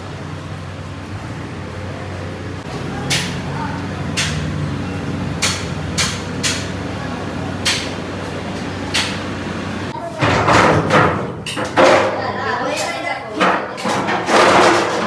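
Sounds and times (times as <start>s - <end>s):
low machine hum: 0.0s - 10.0s
loud voices: 0.0s - 15.0s
sharp knocks on metal: 3.1s - 3.5s, 4.1s - 4.6s, 5.4s - 6.9s, 7.6s - 8.0s, 10.2s - 12.2s.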